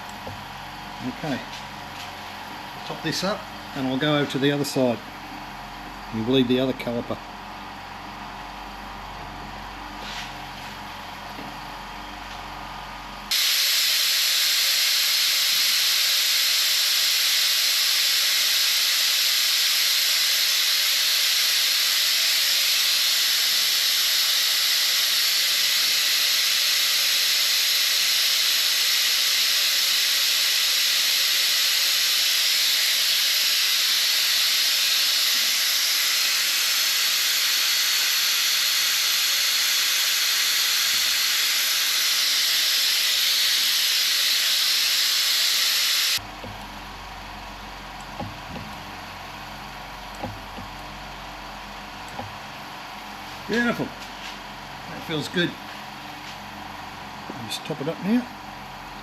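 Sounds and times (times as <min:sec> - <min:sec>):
vacuum brake bleeder hissing: 0:13.3 - 0:46.6.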